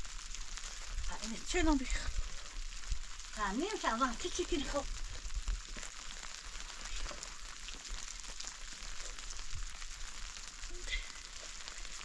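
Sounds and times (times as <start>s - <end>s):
hiss with fine crackles: 0.0s - 12.0s.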